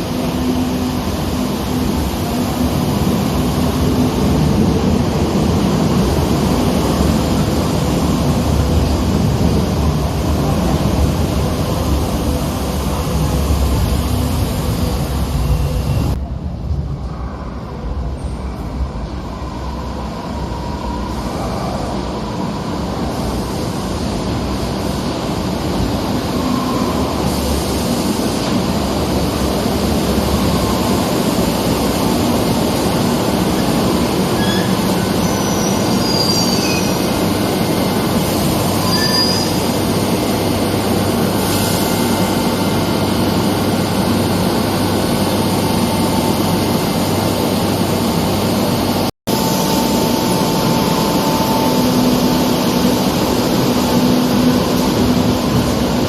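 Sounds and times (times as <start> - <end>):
metro train running: 0.0 - 56.0
high wheel squeals: 33.6 - 40.2.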